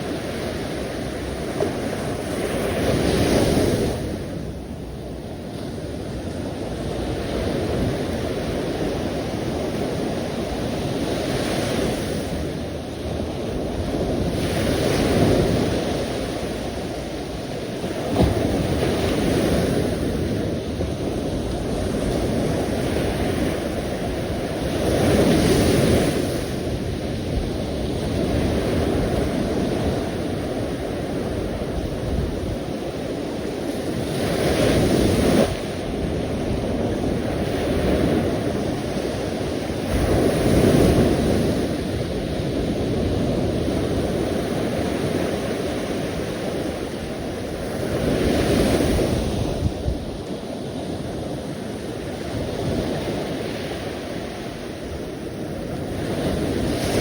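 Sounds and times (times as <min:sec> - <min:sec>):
sea waves breaking on shore: 0:00.0 - 0:57.0.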